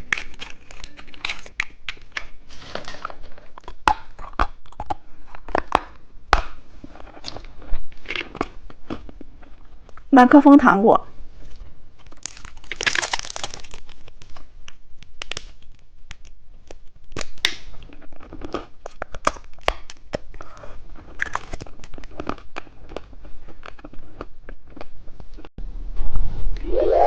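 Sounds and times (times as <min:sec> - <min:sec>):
plastic wrappers crinkling: 0:12.0 - 0:14.5.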